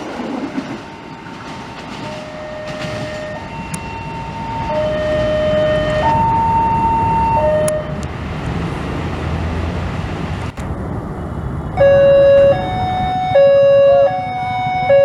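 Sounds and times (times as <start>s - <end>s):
passing train rumble: 0.0s - 15.0s
train horn: 2.0s - 8.0s, 11.8s - 15.0s.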